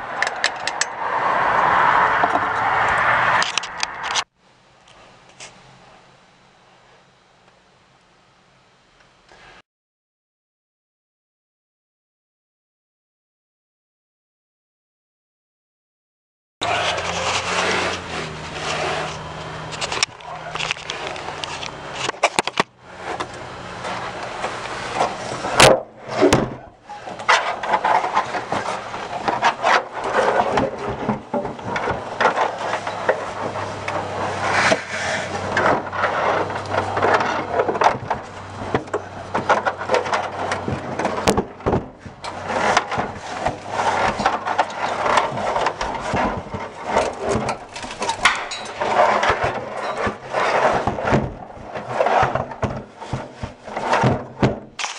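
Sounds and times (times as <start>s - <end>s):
scraping and rubbing by hand: 16.6s - 41.3s, 41.9s - 54.2s.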